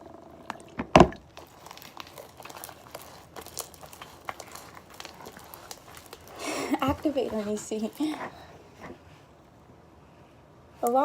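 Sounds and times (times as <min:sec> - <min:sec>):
slime crackling and clicking: 0:01.3 - 0:08.3.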